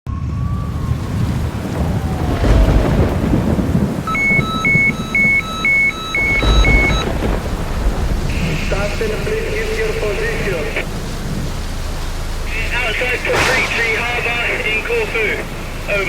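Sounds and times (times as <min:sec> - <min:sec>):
heavy rain: 0:00.1 - 0:16.0
thunder rumbling: 0:00.1 - 0:16.0
electronic alarm beeping: 0:04.1 - 0:07.2.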